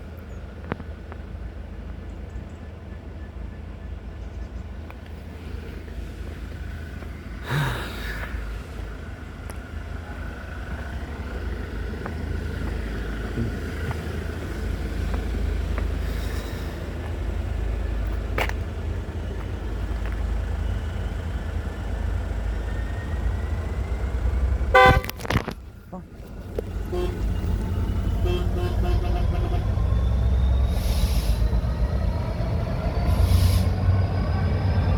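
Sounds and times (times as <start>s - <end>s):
freight train rumbling past: 0.0s - 34.9s
train horn toot: 24.7s - 25.3s, 26.8s - 29.9s.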